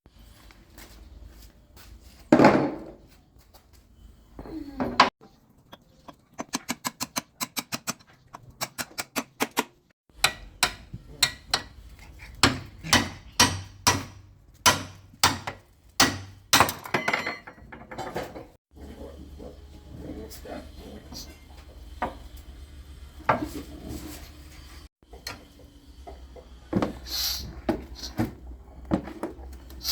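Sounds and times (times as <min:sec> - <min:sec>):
hammer strikes: 0:06.5 - 0:11.8, 0:12.4 - 0:17.0.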